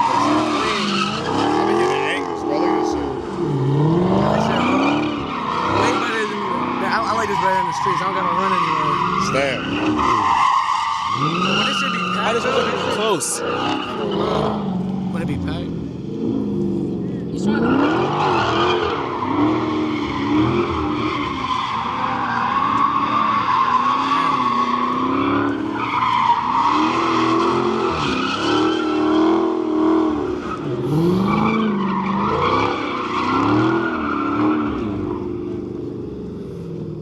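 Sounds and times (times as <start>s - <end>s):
tyres squealing: 0.0s - 15.3s
car engine revving: 0.0s - 37.0s.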